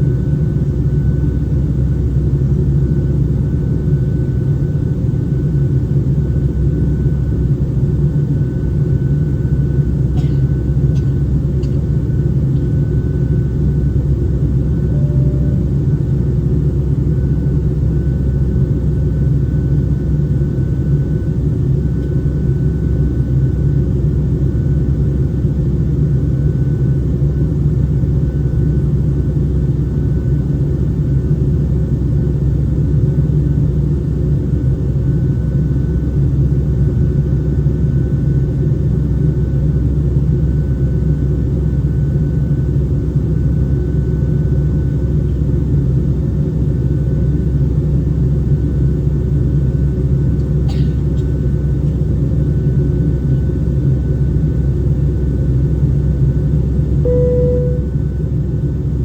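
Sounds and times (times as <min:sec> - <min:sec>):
low rumble of engines and airflow: 0:00.0 - 0:59.0
faint high whine: 0:14.5 - 0:16.6, 0:57.0 - 0:58.2.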